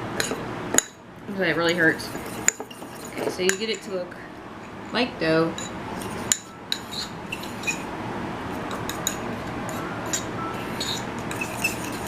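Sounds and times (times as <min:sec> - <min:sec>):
fork clinking against ramekin: 0:08.7 - 0:12.0.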